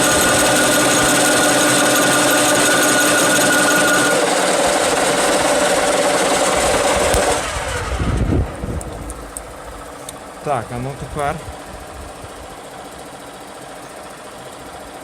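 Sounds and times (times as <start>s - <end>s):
power tool whining on metal: 0.0s - 8.1s.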